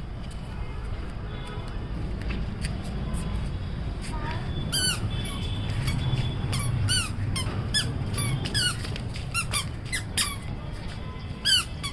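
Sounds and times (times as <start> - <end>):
squeaky sandals squeaking: 4.3 - 11.9.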